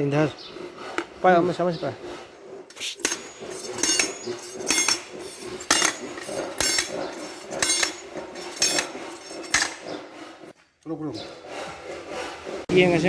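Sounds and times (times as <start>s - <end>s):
hammer striking metal: 2.7s - 10.0s.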